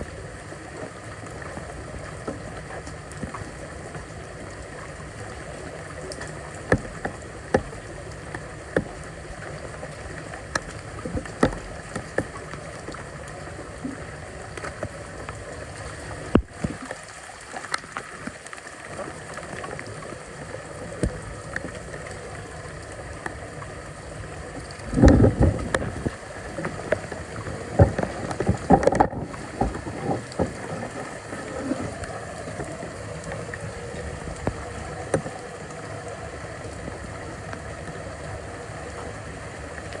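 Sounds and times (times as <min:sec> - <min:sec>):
floodwater running and gurgling: 0:00.0 - 0:40.0
knocks and scrapes: 0:24.9 - 0:32.0.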